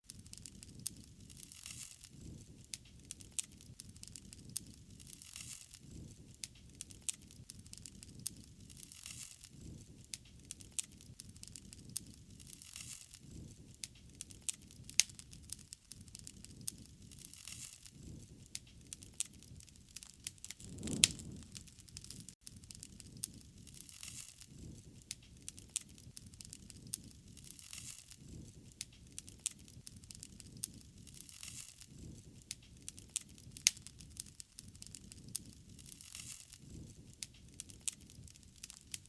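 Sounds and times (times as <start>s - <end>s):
wood fire crackling and popping: 0.1s - 39.0s
low fire rush: 20.6s - 22.3s.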